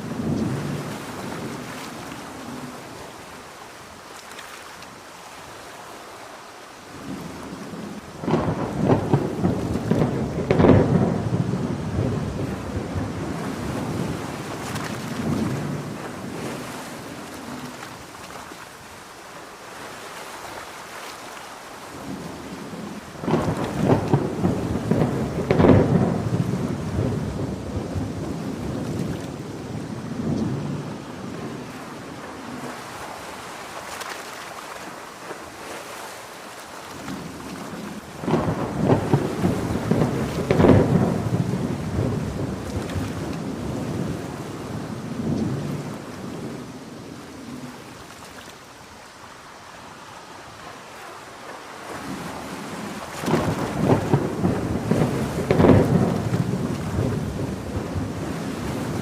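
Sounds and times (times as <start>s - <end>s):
crackling thunder rolls: 0.0s - 3.3s, 6.9s - 18.2s, 21.9s - 33.5s, 37.0s - 48.0s, 51.9s - 59.0s
heavy rain: 0.0s - 59.0s.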